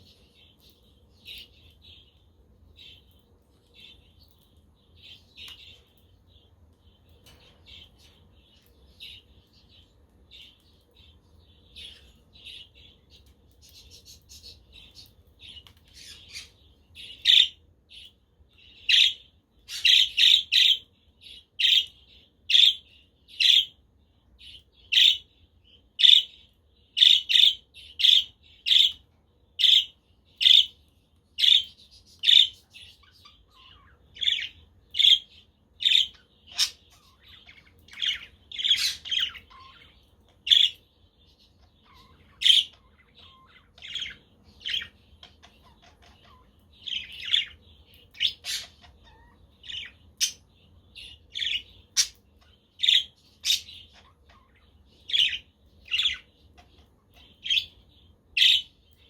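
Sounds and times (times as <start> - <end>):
budgerigars chirping softly: 0.0 - 59.0.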